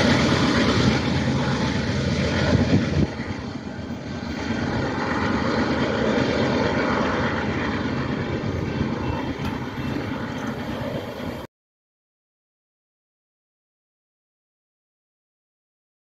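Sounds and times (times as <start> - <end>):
freight train rumbling: 0.0 - 11.5.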